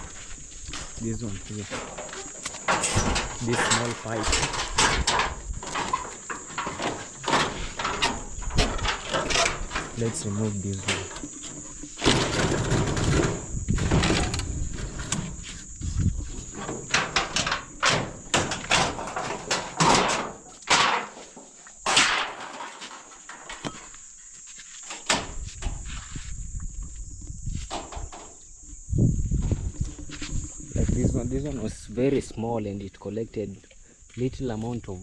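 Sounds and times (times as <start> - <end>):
gutter pipe scraping and rattling: 0.0 - 24.2, 24.8 - 26.4, 27.4 - 28.4, 29.2 - 32.4.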